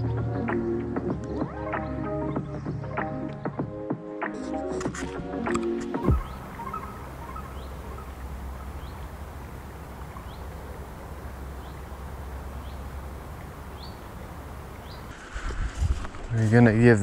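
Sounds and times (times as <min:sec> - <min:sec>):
steady low rumble: 0:05.2 - 0:17.0
bird rising chirp: 0:05.9 - 0:15.3.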